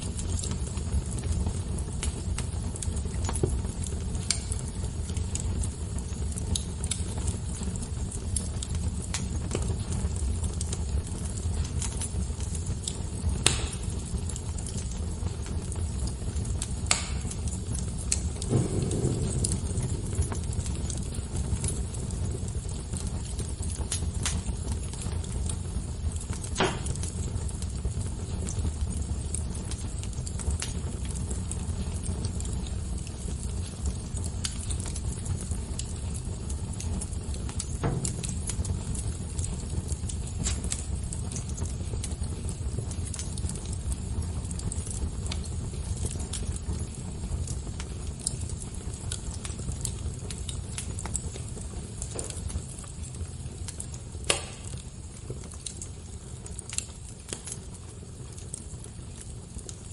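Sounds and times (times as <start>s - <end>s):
fire crackling: 0.0s - 59.9s
fire snaps and pops: 0.0s - 59.9s
low rumble: 18.3s - 22.8s.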